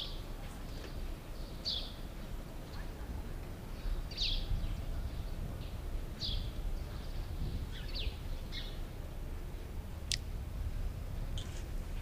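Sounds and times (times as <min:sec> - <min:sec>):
birds chirping: 0:00.0 - 0:08.9
low outdoor rumble: 0:00.0 - 0:12.0.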